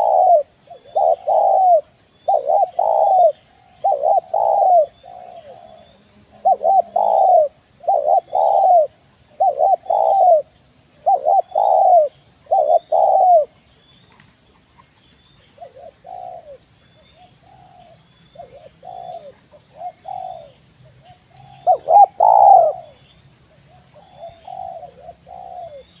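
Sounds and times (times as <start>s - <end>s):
dove cooing: 0.0s - 13.6s, 15.6s - 16.6s, 17.2s - 23.0s, 23.8s - 26.0s.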